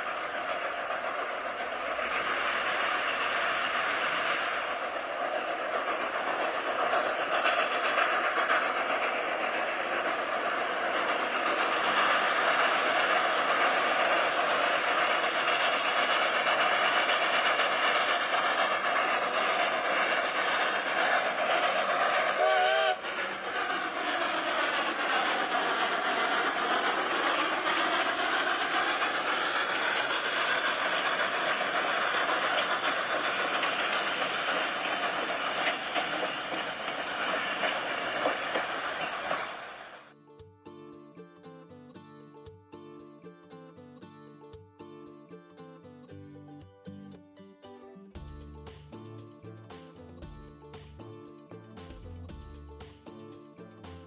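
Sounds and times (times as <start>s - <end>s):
train wheels on rails: 0.0s - 40.2s
wheel squeal: 11.8s - 40.1s.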